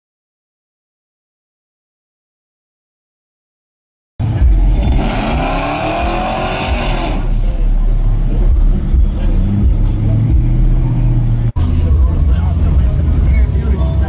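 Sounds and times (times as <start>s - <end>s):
car engine revving: 4.2s - 14.0s.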